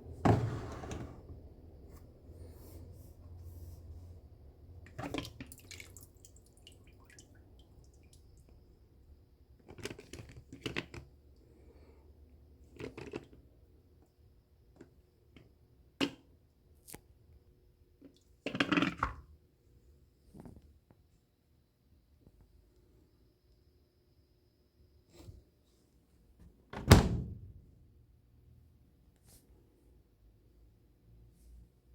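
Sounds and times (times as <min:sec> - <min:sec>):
water sloshing in washing machine: 0:04.9 - 0:08.1.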